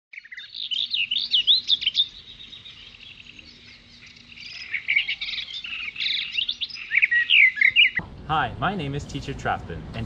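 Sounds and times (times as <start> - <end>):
songbirds singing: 0.1 - 8.0.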